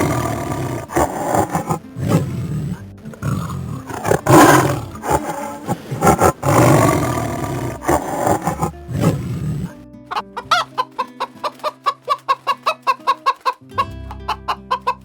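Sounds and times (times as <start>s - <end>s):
tiger roaring: 0.0s - 9.8s.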